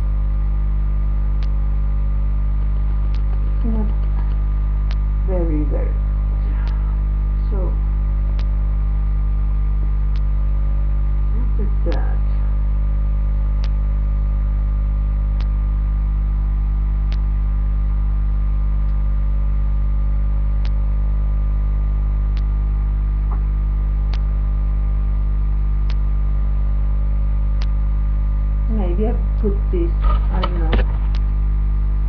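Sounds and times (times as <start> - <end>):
electrical mains hum: 0.0 - 32.0
faint sharp click: 1.4 - 1.6, 17.1 - 17.3, 20.6 - 20.8, 22.3 - 22.5, 24.1 - 24.3, 25.8 - 26.0, 27.6 - 27.8.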